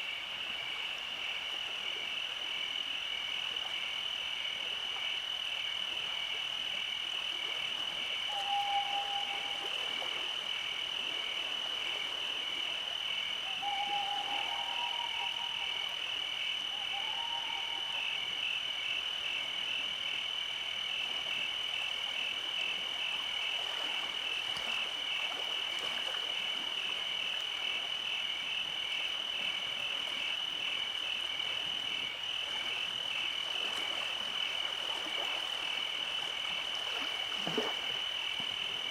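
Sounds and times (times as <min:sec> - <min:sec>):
frogs trilling: 0:07.4 - 0:21.5.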